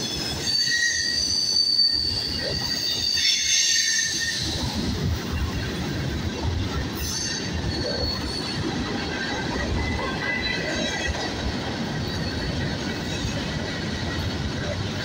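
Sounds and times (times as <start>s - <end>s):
freight train wheels rumbling: 0.0s - 15.0s
high-pitched wheel squeal: 0.1s - 4.8s, 7.0s - 8.6s.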